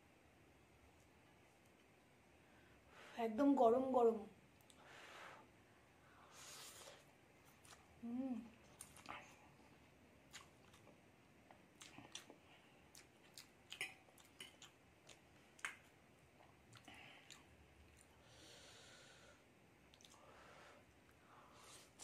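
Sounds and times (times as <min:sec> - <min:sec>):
soft hiss: 0:00.0 - 0:13.1
wet chewing clicks: 0:10.3 - 0:18.2, 0:19.9 - 0:20.2.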